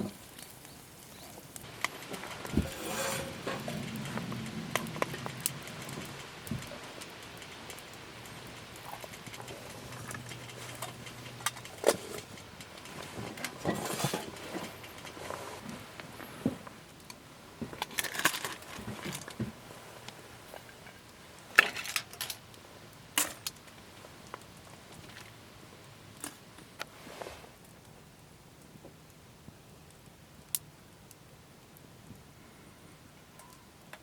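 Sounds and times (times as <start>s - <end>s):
sharp clicks and light knocks: 1.4s - 19.6s.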